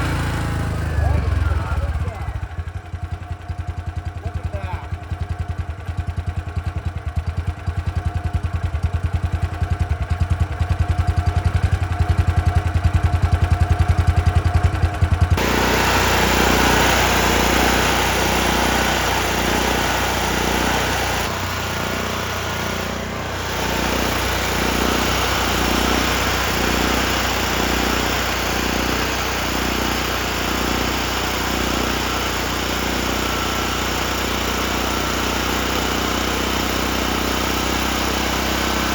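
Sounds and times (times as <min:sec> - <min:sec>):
gasoline engine running: 0:00.0 - 0:03.5, 0:11.3 - 0:38.9.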